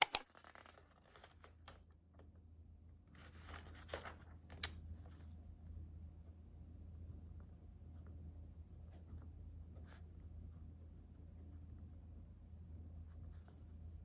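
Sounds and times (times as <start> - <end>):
handling clicks and rustles: 0.0 - 0.2.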